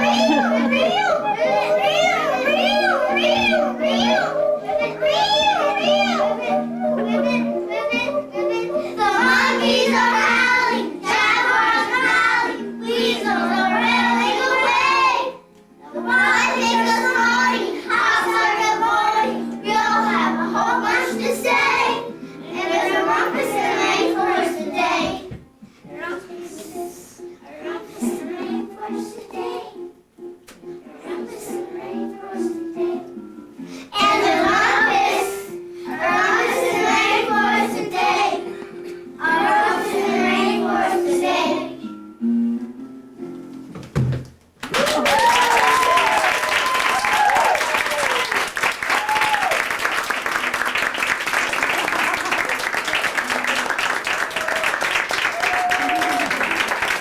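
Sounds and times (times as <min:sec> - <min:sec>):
instrumental accompaniment: 0:00.0 - 0:25.8
children singing: 0:00.0 - 0:29.9, 0:30.8 - 0:33.2, 0:33.9 - 0:38.6, 0:39.2 - 0:41.9.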